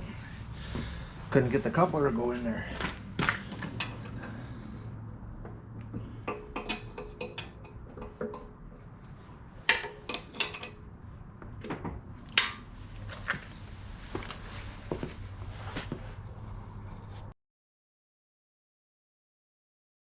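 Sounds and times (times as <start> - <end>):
steady low hum: 0.0 - 17.3
metal parts and tools clanking: 2.8 - 4.4, 5.9 - 8.8, 9.6 - 13.5.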